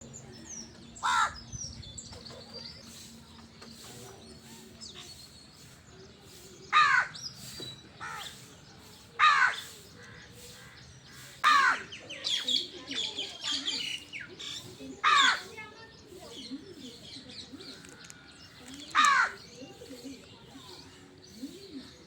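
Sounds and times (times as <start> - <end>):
crows cawing: 1.0 - 1.4, 6.8 - 7.2, 9.2 - 10.8, 11.4 - 12.0, 15.0 - 15.5, 19.0 - 19.4.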